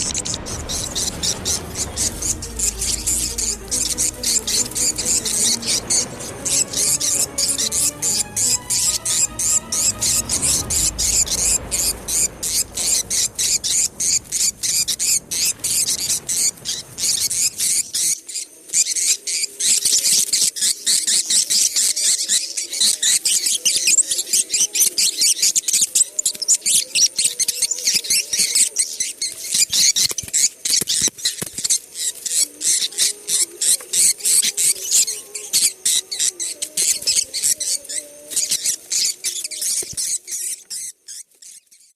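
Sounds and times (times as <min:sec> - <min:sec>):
low hum: 0:00.0 - 0:17.8.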